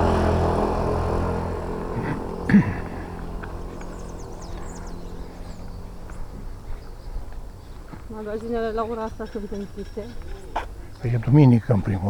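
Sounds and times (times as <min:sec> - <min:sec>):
motor vehicle humming: 0:00.0 - 0:12.0
high bird chirps: 0:03.5 - 0:10.5.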